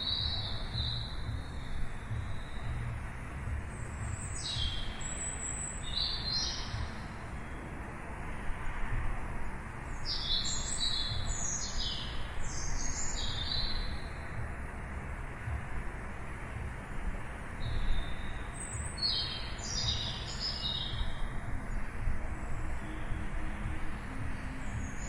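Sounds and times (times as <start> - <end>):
small birds chirping: 0.0 - 25.0
low background rumble: 0.1 - 7.4.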